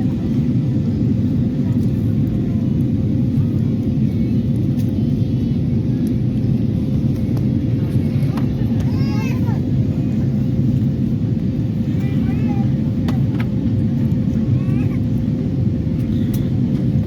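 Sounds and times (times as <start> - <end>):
aircraft cabin low rumble: 0.0 - 17.0
constant hum: 0.0 - 17.0.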